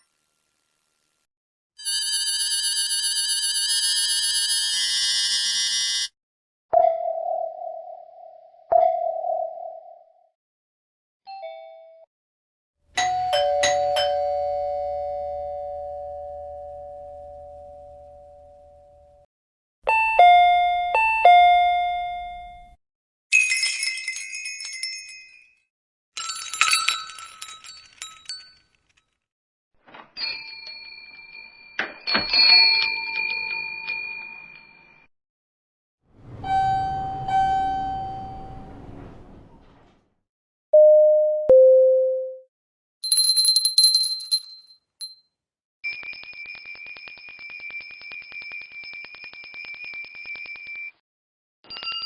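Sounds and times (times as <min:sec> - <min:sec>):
shop-door bells jingling: 0:13.0 - 0:18.0, 0:23.4 - 0:25.5, 0:26.2 - 0:28.7, 0:30.2 - 0:34.8, 0:36.3 - 0:38.8, 0:43.0 - 0:45.2
doorbell ding-dong: 0:13.0 - 0:19.1, 0:19.9 - 0:22.8, 0:36.3 - 0:38.7, 0:40.8 - 0:42.4.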